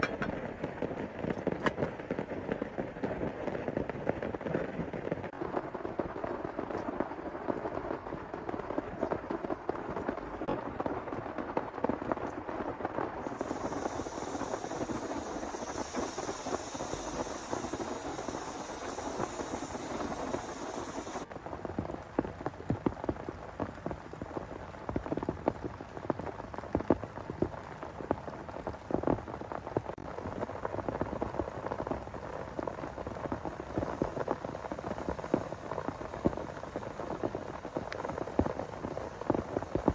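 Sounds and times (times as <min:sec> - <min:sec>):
heavy rain pattering: 0:00.0 - 0:39.9
bright hiss: 0:13.2 - 0:21.3, 0:31.2 - 0:39.9.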